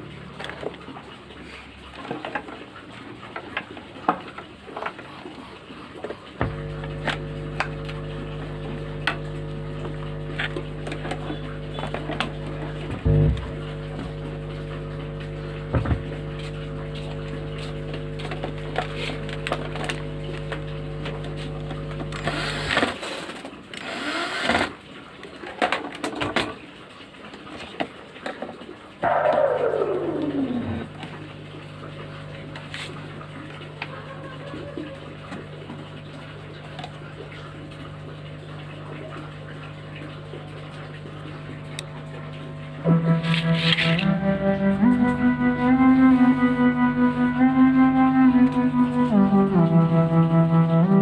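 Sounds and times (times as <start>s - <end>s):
electrical mains hum: 0.0s - 51.0s
falling tone: 29.0s - 31.0s.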